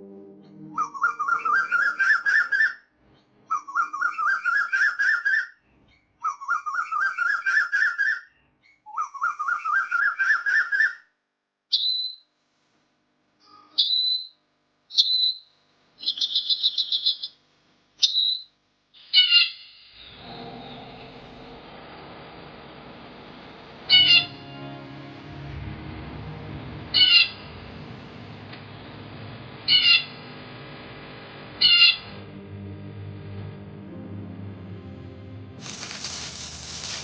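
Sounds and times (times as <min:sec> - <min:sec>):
bird chirps and trill: 0:00.7 - 0:02.8, 0:03.5 - 0:05.5, 0:06.2 - 0:08.3, 0:08.9 - 0:11.0, 0:13.8 - 0:15.4, 0:16.0 - 0:17.4, 0:18.0 - 0:18.5, 0:23.9 - 0:24.4, 0:31.6 - 0:32.1
bird whistling rising notes: 0:00.7 - 0:02.8, 0:03.5 - 0:05.5, 0:23.9 - 0:24.6, 0:26.9 - 0:27.4.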